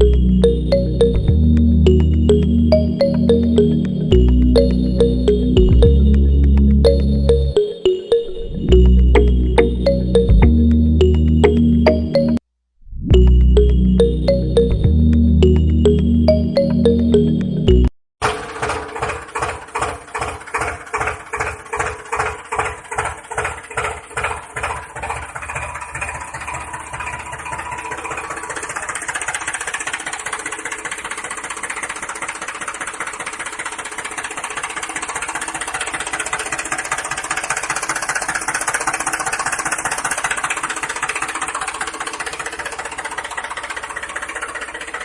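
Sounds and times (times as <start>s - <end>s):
mini tractor engine running: 18.2s - 45.0s.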